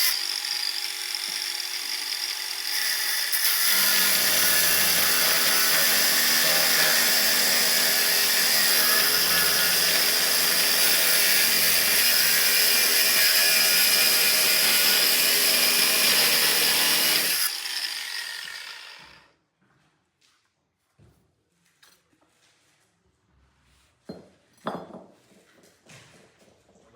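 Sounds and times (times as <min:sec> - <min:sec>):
power tool motor running: 0:00.0 - 0:19.2.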